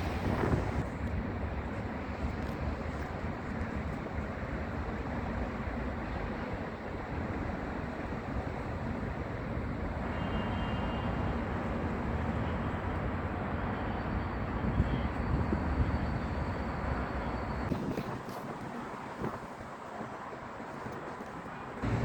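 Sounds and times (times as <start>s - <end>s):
vehicle engine rumble: 0.0s - 7.1s, 15.8s - 22.0s.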